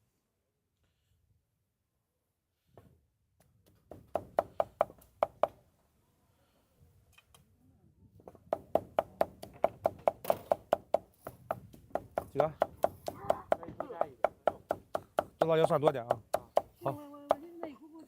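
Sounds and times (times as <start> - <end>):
cleaver chopping meat on wood: 8.5 - 17.5.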